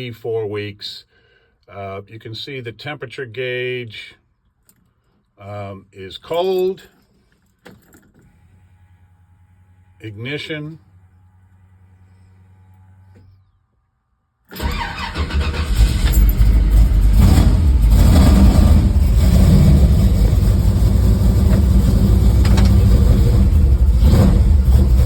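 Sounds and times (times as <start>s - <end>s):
pickup engine starting and idling: 14.5s - 25.0s.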